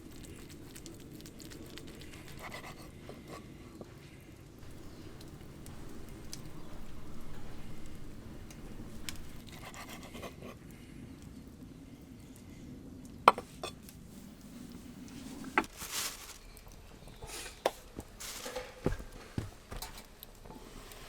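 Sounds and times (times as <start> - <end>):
low steady rumble: 4.6 - 9.7.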